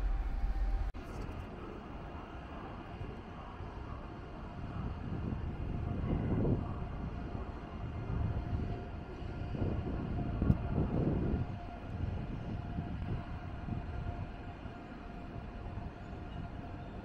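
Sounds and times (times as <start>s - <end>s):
train rumbling: 0.0s - 3.0s
faint steady whine: 0.0s - 17.0s.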